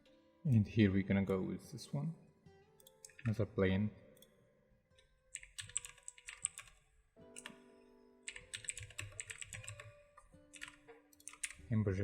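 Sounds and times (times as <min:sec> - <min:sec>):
keyboard typing clicks: 0:02.8 - 0:03.4, 0:05.3 - 0:07.6, 0:08.3 - 0:11.6.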